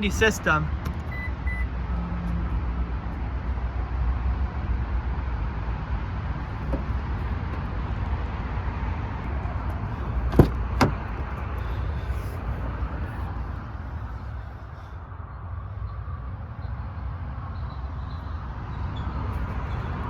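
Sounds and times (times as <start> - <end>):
car latch clicks: 6.5 - 7.8, 9.9 - 12.3.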